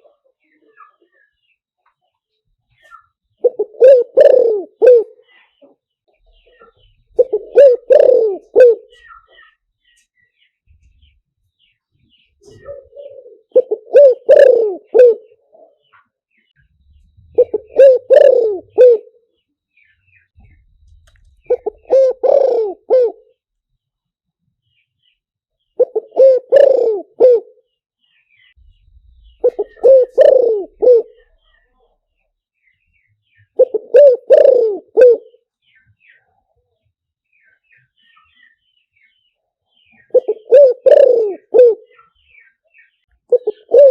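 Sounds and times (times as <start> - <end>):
dove cooing: 3.4 - 5.4, 6.4 - 9.5, 12.4 - 15.9, 17.3 - 19.2, 20.4 - 23.4, 25.8 - 27.6, 29.2 - 31.6, 33.5 - 35.4, 40.0 - 42.1, 43.3 - 43.9.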